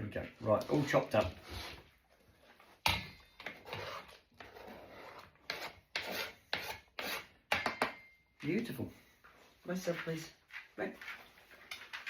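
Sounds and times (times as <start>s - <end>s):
rough scraping by hand: 3.5s - 7.4s.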